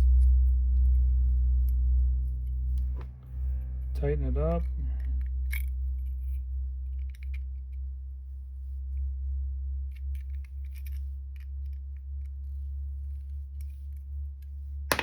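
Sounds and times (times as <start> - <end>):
steady low hum: 0.0 - 15.0
small metallic clicks and scrapes: 9.8 - 14.7.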